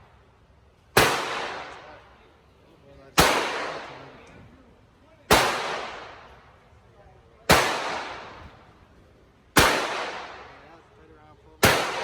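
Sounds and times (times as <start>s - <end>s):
pistol shots echoing: 1.0s - 2.0s, 3.2s - 4.2s, 5.3s - 6.4s, 7.5s - 8.6s, 9.6s - 10.6s, 11.6s - 12.0s.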